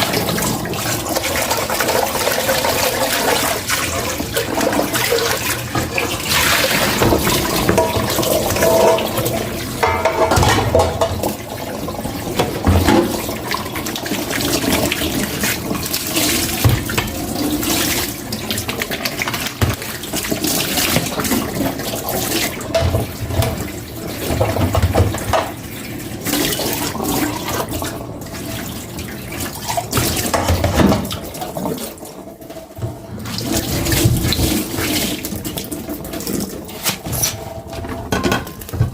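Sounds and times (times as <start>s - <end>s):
tap water running into sink: 0.0s - 38.9s
dishes knocking and clattering: 4.1s - 13.6s, 16.5s - 17.2s, 19.2s - 19.9s, 22.7s - 25.6s, 30.0s - 31.7s, 36.8s - 38.9s.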